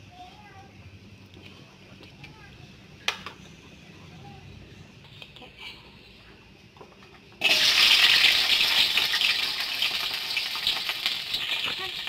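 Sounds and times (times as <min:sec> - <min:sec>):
shallots and garlic sizzling in oil: 0:07.4 - 0:12.0.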